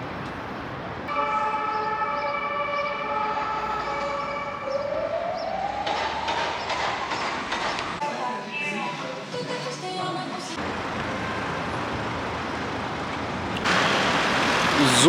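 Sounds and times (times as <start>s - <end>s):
metro train electric whine: 0.0s - 15.0s
wheel and carriage rattle: 5.4s - 8.0s, 10.6s - 15.0s.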